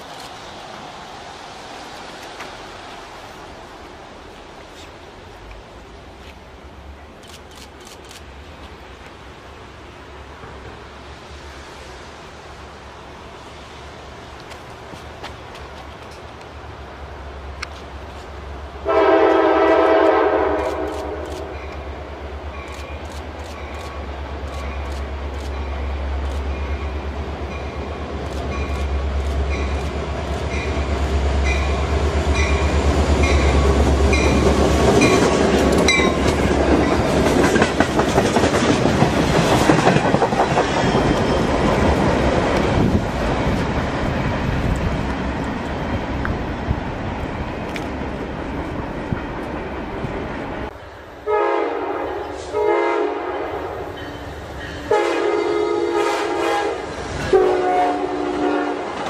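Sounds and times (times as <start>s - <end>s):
diesel locomotive engine drone: 0.0s - 59.0s
locomotive horn blasts: 18.8s - 21.6s, 51.3s - 53.8s, 54.9s - 59.0s.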